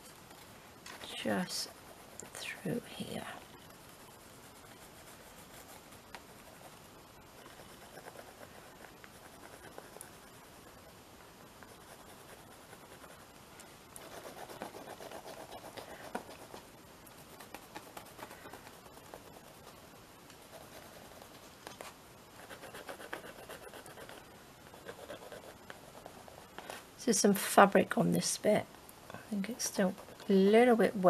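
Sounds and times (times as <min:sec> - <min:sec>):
pencil scribbling on paper: 0:01.0 - 0:06.8, 0:07.4 - 0:10.9, 0:11.6 - 0:13.3, 0:14.0 - 0:16.6, 0:20.4 - 0:21.4, 0:22.4 - 0:26.7.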